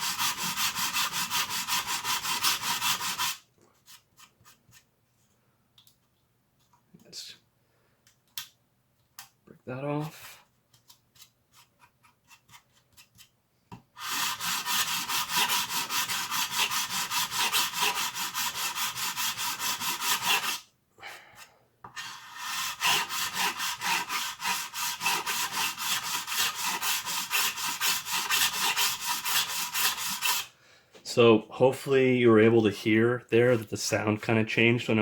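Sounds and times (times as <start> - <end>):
file rasping on plastic: 0.0 - 4.9, 14.0 - 20.6, 21.8 - 30.5.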